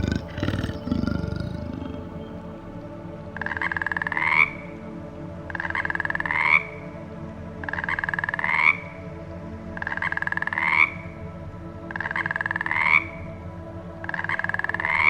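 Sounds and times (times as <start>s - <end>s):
animal pulsing trill call: 0.0s - 2.4s.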